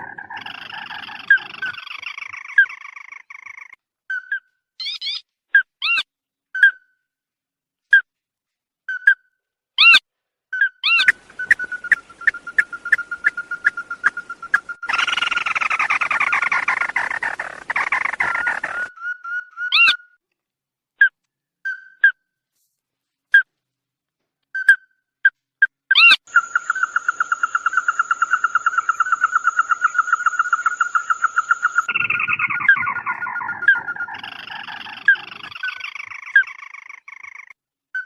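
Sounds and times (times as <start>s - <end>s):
bird chipping: 10.6s - 20.1s, 25.9s - 37.5s
bird trilling: 10.6s - 20.2s, 25.9s - 37.5s.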